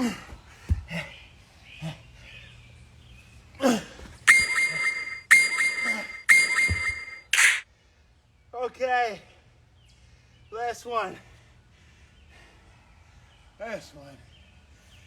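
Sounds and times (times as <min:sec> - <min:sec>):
electronic timer beeps: 0:04.3 - 0:07.6.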